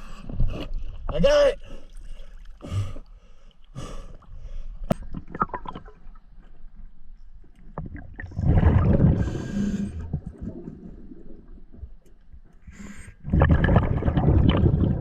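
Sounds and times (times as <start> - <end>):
water noise: 0.0 - 15.0
bubbling exhale: 8.2 - 11.5, 12.8 - 15.0
diver breathing through regulator: 9.0 - 11.0, 12.6 - 13.3.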